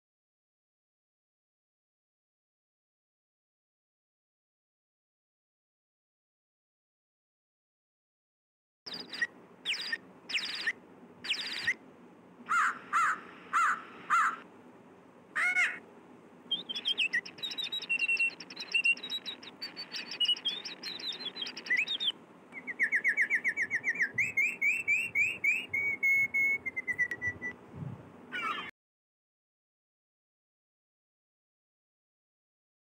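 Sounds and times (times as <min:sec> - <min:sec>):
birds chirping and singing: 0:08.9 - 0:11.8, 0:12.5 - 0:14.4, 0:16.5 - 0:27.6, 0:28.3 - 0:28.7.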